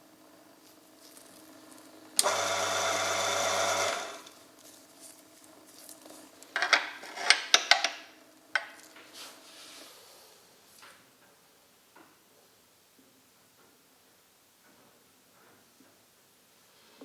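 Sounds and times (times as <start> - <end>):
electric motor running: 1.7 - 4.4.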